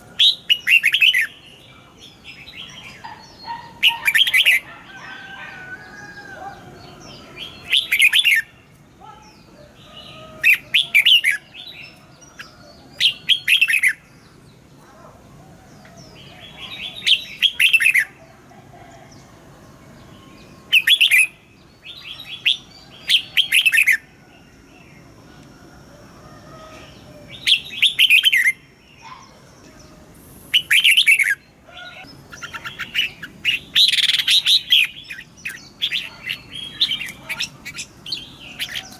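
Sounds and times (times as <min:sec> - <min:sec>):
bulbul singing rapid phrases: 0:16.2 - 0:18.2.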